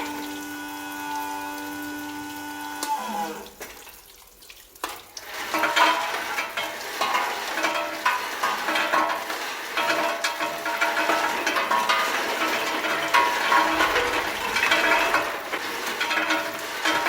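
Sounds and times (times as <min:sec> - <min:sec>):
motor hum winding down: 0:00.0 - 0:03.4
nuts clattering in machine: 0:05.2 - 0:17.0.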